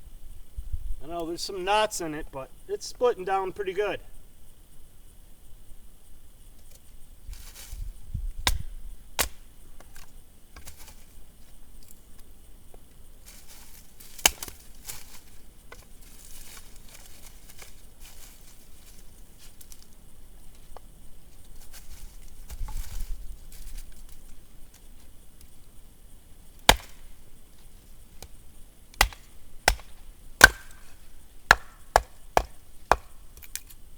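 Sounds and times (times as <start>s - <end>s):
axe chopping firewood: 8.4s - 10.0s, 14.2s - 14.6s, 26.6s - 27.2s, 28.2s - 33.6s
wood knocking when handled: 31.5s - 33.2s.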